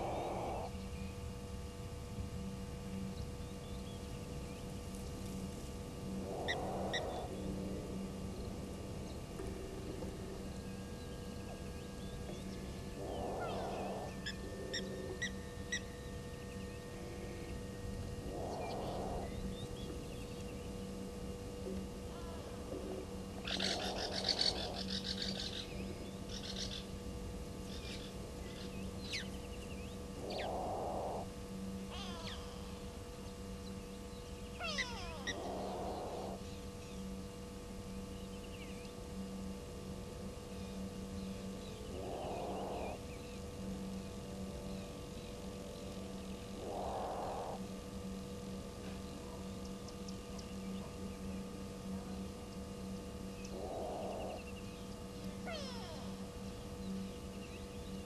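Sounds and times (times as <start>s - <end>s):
small birds chirping: 10.5s - 15.8s, 31.9s - 37.1s, 53.3s - 58.0s.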